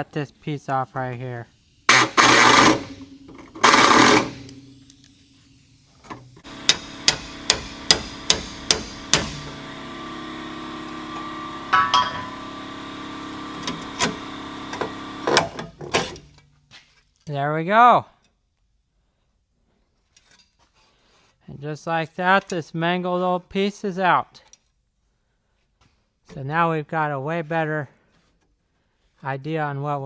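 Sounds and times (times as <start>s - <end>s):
hammer striking sheet metal: 1.9s - 4.8s, 6.6s - 9.6s, 11.7s - 12.4s.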